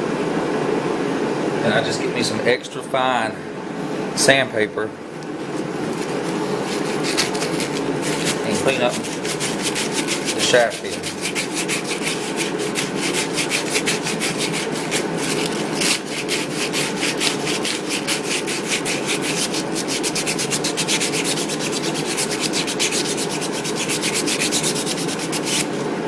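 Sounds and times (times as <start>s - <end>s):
sandpaper rubbing on steel shaft: 5.5s - 26.0s.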